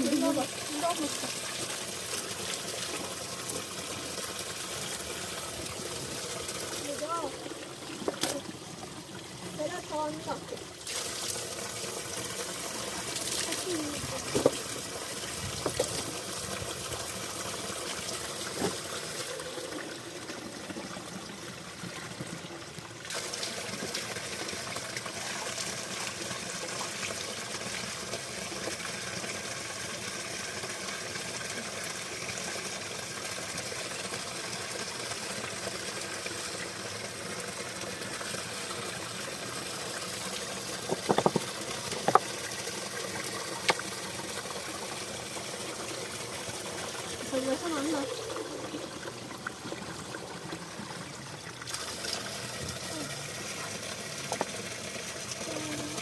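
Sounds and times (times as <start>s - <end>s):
running spring water: 0.0s - 56.0s
short knocks or splashes: 14.2s - 14.7s, 40.8s - 42.3s.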